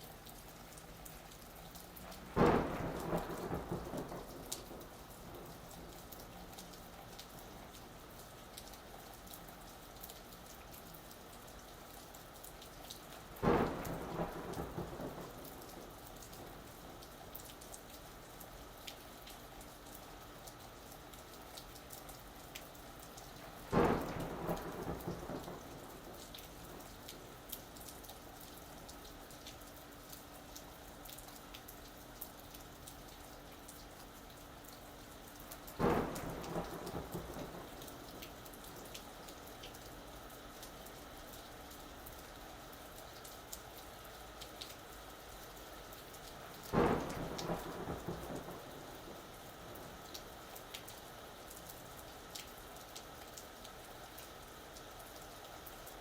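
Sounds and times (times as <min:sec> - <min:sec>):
steady rain: 0:00.0 - 0:56.0
thunder clap rumbling: 0:02.2 - 0:06.0, 0:13.4 - 0:16.6, 0:23.7 - 0:27.3, 0:35.8 - 0:38.4, 0:46.7 - 0:50.1.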